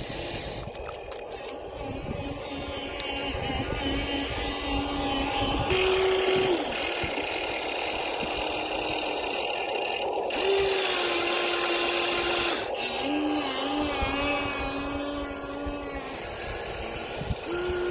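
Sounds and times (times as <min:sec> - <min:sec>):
toy electric motors whining: 0:00.0 - 0:17.9.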